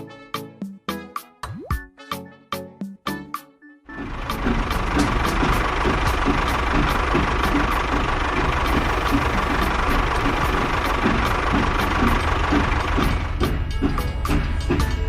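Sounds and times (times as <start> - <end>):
background music with ticks: 0.0 - 15.0
engine-like running noise: 3.9 - 15.0.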